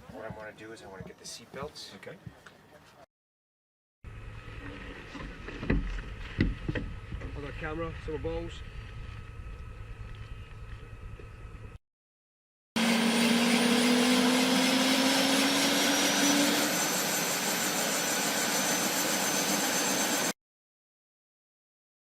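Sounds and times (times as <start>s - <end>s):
helicopter turbine and rotor: 12.8s - 20.4s.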